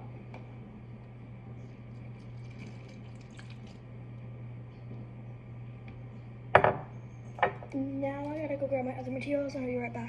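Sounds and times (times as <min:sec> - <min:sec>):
steady low hum: 0:00.0 - 0:10.0
faint water drips: 0:02.2 - 0:03.8.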